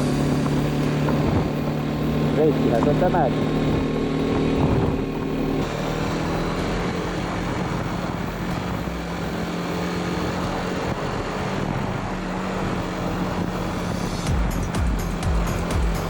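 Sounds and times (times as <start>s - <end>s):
motorcycle engine cruising: 0.0s - 16.0s
wind and road noise: 0.0s - 16.0s.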